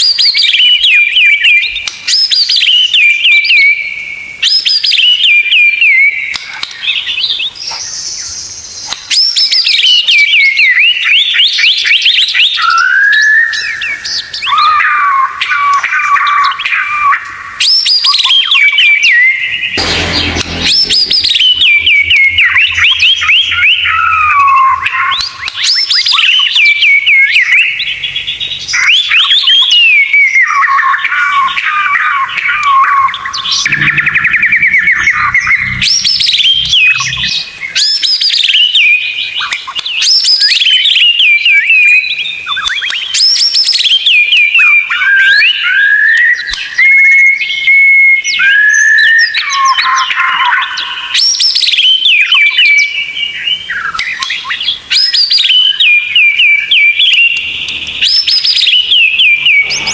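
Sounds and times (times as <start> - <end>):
songbird whistling and trilling: 0.0 - 19.6, 34.8 - 59.9.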